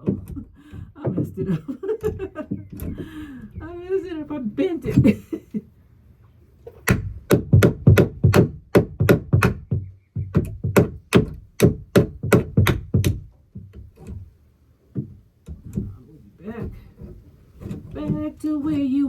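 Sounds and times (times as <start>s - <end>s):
hammer driving nail into wood: 6.8s - 14.2s.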